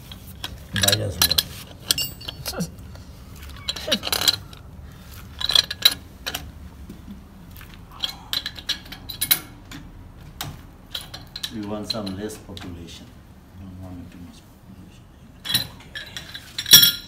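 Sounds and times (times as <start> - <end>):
metal fittings clinking and knocking: 0.0 - 2.7, 10.9 - 12.7.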